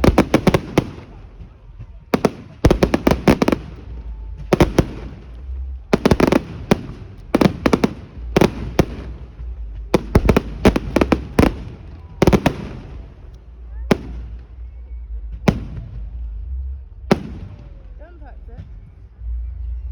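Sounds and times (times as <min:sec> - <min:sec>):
firework bangs and cracks: 0:00.0 - 0:14.4, 0:15.3 - 0:16.2, 0:17.1 - 0:17.9.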